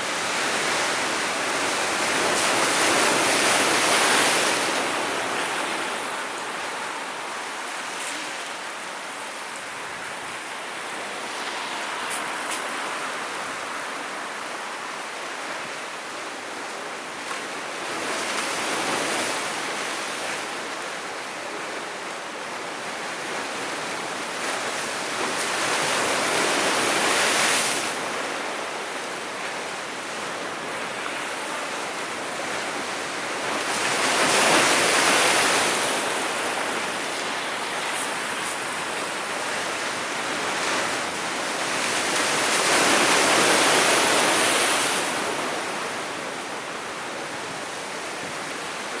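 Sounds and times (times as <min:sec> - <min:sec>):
sea waves breaking: 0:23.2 - 0:49.0.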